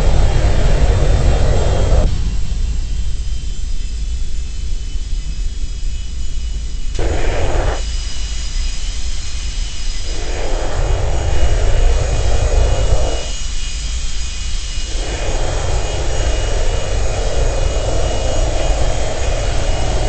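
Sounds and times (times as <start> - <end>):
jet engines running: 0.0 - 20.0
coarse hiss: 6.7 - 20.0.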